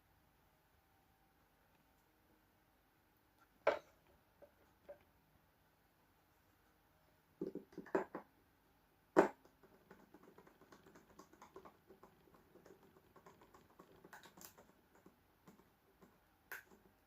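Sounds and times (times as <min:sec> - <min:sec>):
small irregular clicks and ticks: 0:09.2 - 0:17.0.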